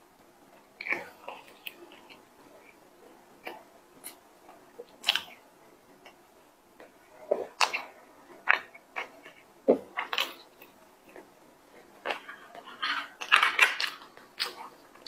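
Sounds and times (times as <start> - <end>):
person chewing pastry: 0.6 - 6.2, 6.8 - 15.0.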